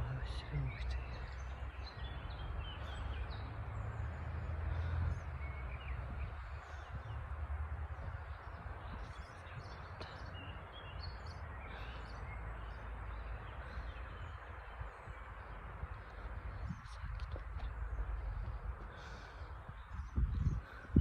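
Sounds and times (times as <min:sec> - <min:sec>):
low outdoor rumble: 0:00.0 - 0:21.0
small birds chirping: 0:00.0 - 0:21.0.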